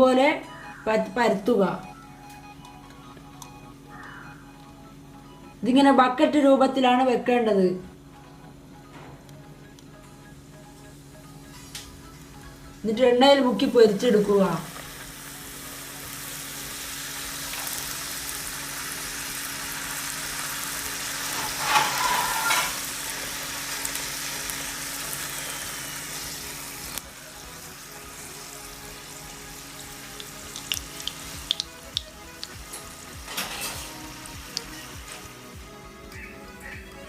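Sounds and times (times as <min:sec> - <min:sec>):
dough deep-frying in oil sizzling: 0:13.6 - 0:35.6
crackling pops: 0:30.2 - 0:32.8, 0:34.5 - 0:34.8.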